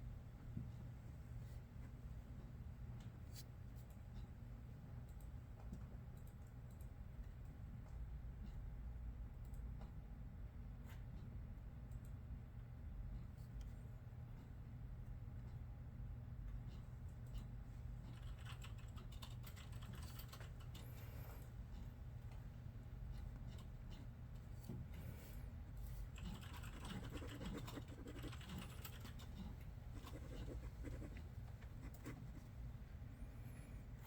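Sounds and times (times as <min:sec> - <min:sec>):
low room hum: 0:00.0 - 0:34.0.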